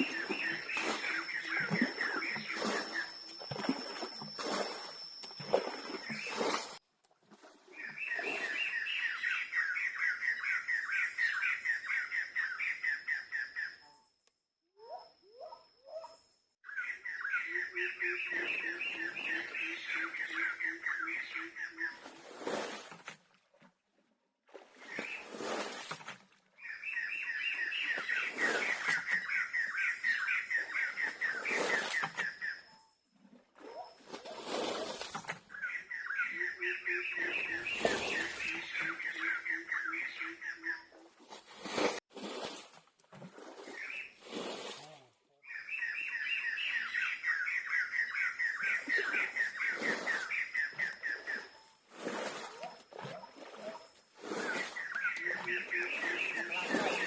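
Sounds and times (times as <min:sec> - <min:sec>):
bird calling rapid notes: 0:00.0 - 0:06.8
bird chirping rapidly: 0:00.0 - 0:06.8, 0:26.7 - 0:32.7, 0:35.5 - 0:40.8, 0:54.2 - 0:57.0.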